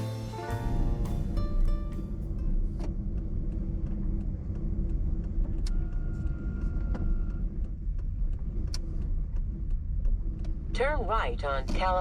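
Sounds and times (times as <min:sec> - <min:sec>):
car engine and tyres rumbling: 0:00.0 - 0:12.0
light ticks: 0:07.0 - 0:10.7.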